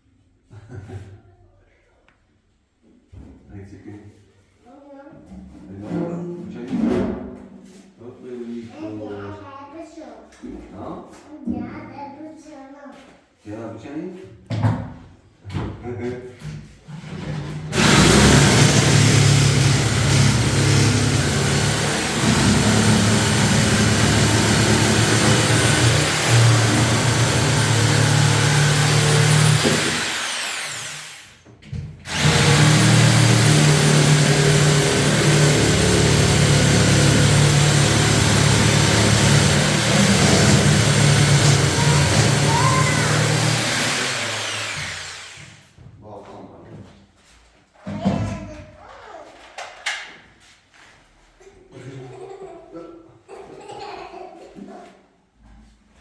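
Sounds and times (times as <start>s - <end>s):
motor engine humming: 17.8s - 31.0s.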